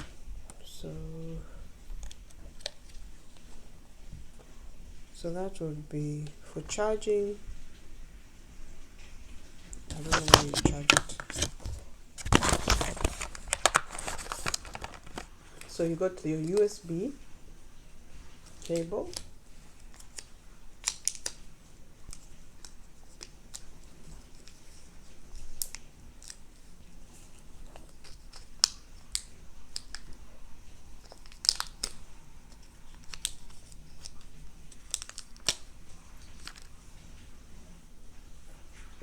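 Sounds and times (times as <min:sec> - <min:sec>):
packaging crinkling and rustling: 0:09.7 - 0:17.2, 0:18.3 - 0:30.2, 0:30.9 - 0:37.3.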